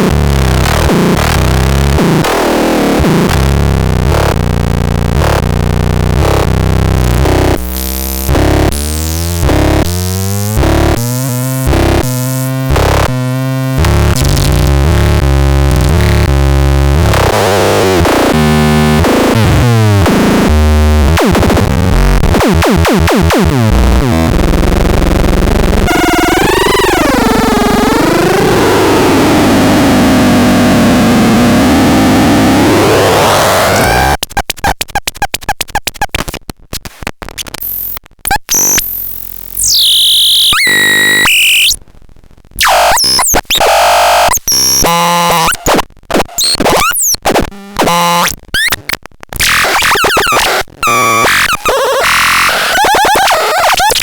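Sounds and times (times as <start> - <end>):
electronic synthesizer music: 42.6 - 45.7.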